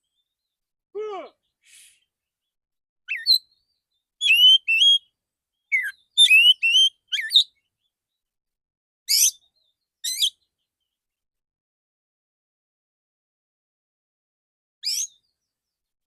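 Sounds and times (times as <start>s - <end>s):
bird singing whistled notes: 3.1s - 7.7s, 9.1s - 10.5s, 14.8s - 15.3s.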